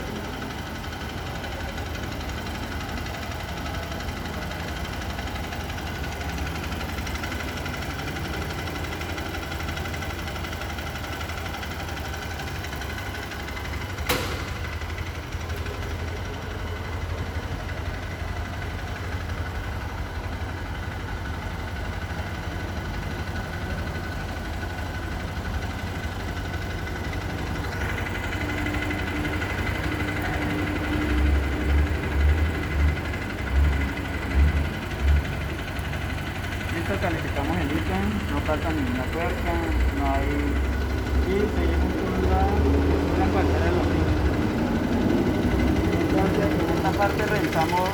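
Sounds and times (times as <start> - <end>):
engine idling: 0.0 - 47.9
sharp click: 14.0 - 14.9.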